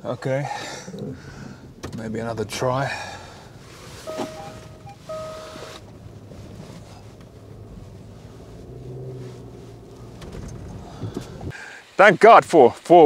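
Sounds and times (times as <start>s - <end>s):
car engine under load: 0.0s - 11.5s
electronic beep: 4.1s - 5.7s.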